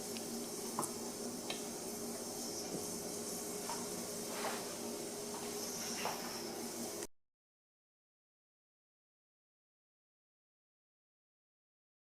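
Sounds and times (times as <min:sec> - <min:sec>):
steam hissing from pressure cooker: 0:00.0 - 0:07.1.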